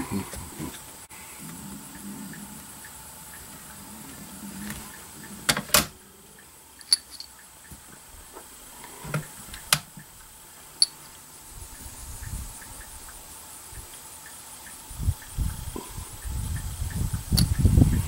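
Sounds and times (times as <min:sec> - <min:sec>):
objects clicking and knocking: 0:06.8 - 0:07.3.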